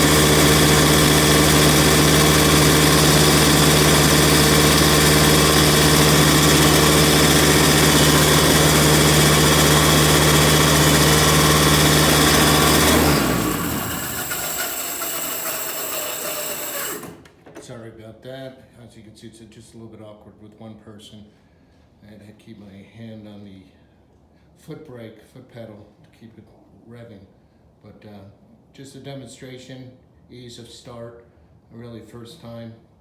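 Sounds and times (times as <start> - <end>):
two-stroke go-kart engine running: 0.0 - 17.3.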